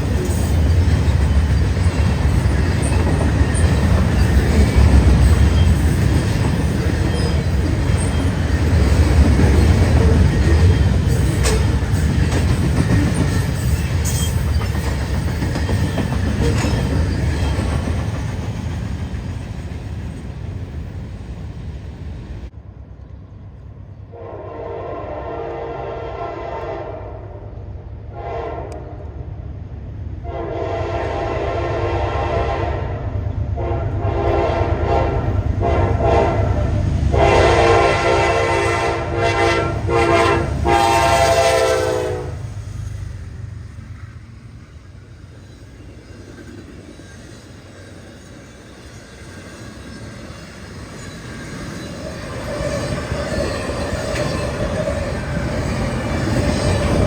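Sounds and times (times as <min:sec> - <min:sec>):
train rumbling past: 0:00.0 - 0:57.0
locomotive air horn blasts: 0:24.1 - 0:27.2, 0:28.1 - 0:29.0, 0:30.2 - 0:42.4.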